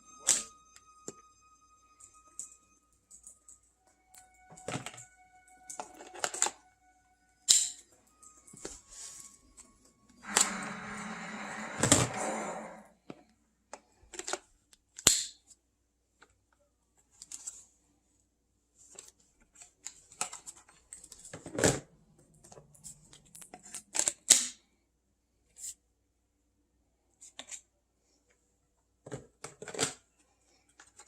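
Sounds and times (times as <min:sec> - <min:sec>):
plastic parts clicking and tapping: 0:05.7 - 0:06.6, 0:13.1 - 0:15.5, 0:29.0 - 0:30.1.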